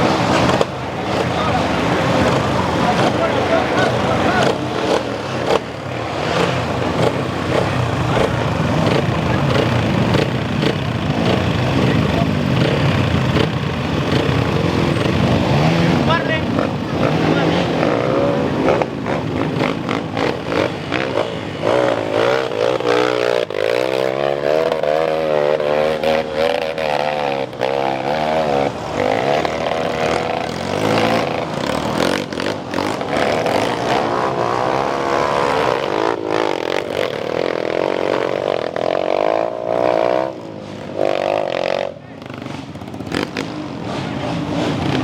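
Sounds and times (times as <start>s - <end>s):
dirt bike engines revving: 0.0s - 45.0s.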